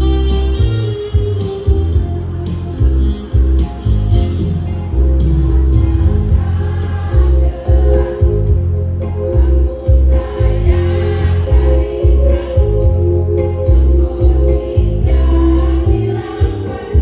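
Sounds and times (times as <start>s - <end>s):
instrumental music with pulsing bass: 0.0s - 17.0s
choir singing in unison: 4.4s - 17.0s.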